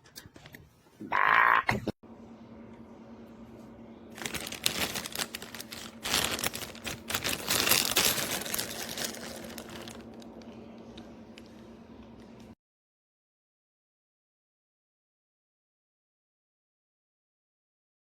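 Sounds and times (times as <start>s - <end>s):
steady low hum: 2.0s - 12.6s
rustling and crinkling handling noise: 4.1s - 12.6s.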